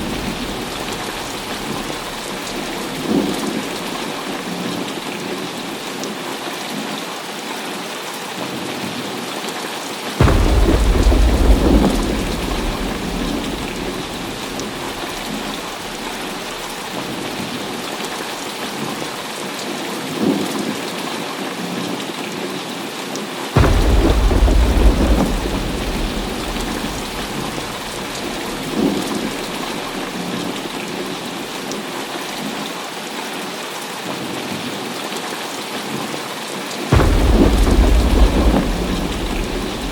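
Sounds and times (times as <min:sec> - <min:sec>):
thunder claps rumbling: 0:00.0 - 0:05.1, 0:10.2 - 0:18.2, 0:23.6 - 0:31.6, 0:36.9 - 0:39.9
heavy rain falling: 0:00.0 - 0:39.9.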